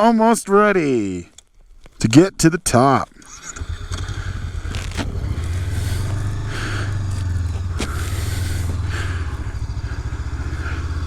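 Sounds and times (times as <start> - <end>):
motorcycle engine running: 3.3 - 11.0.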